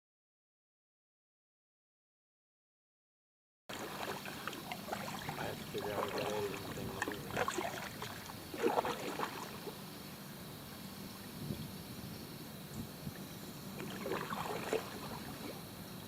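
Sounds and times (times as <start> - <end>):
water splashes and drips: 3.7 - 9.8, 13.1 - 15.6
paddle strokes in water: 3.7 - 16.0.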